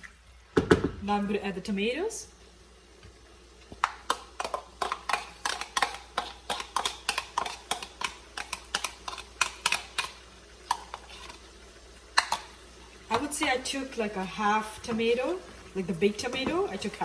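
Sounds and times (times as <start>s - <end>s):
kitchen utensil clicking and knocking: 3.8s - 11.0s.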